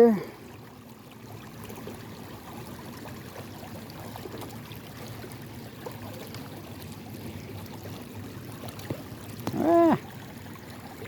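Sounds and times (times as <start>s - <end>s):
creek water rushing over rapids: 2.8s - 11.0s.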